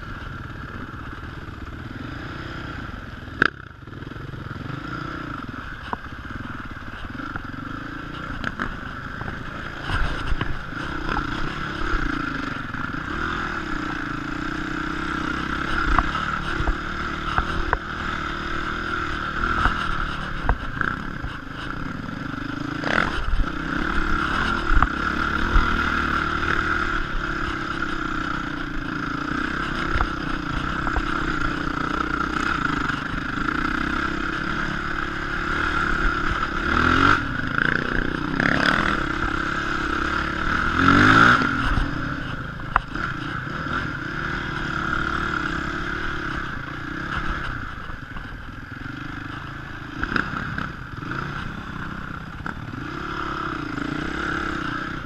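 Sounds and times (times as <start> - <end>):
motorcycle engine revving: 0.0 - 55.0
motorcycle clattering over bumps: 3.1 - 55.0.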